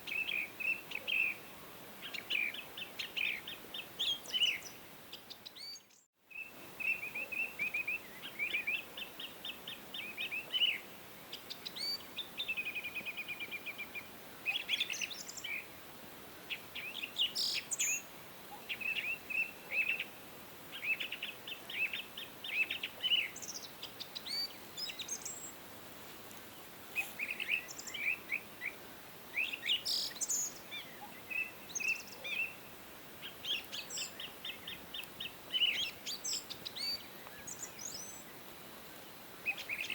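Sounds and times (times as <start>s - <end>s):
songbirds singing: 0.0s - 15.8s, 16.4s - 39.9s
faint steady hiss: 0.0s - 39.9s.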